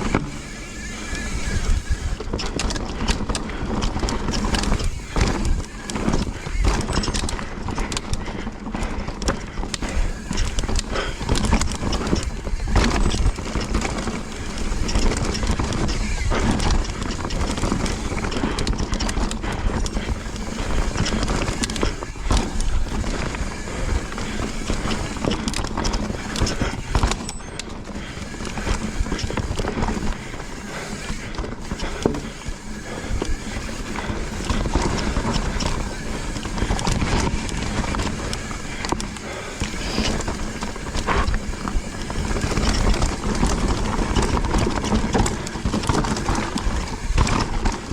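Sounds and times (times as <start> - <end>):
bike chain and frame rattling: 0.0 - 47.9
bike tyres rolling and skidding on dirt: 0.0 - 47.9.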